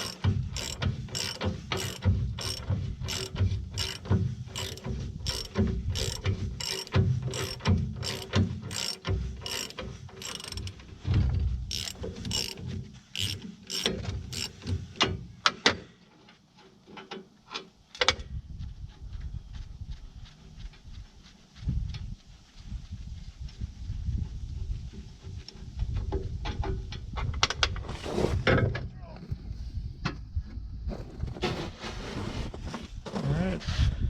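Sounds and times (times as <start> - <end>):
ratchet wrench clicking: 0.0 - 10.9, 11.7 - 14.8.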